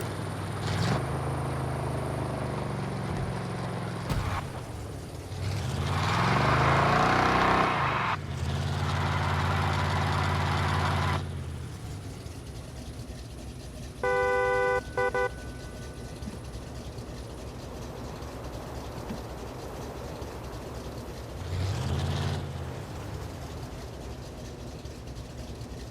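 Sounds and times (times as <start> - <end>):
truck engine revving: 0.0 - 25.9
vehicle horn toots: 14.0 - 16.2.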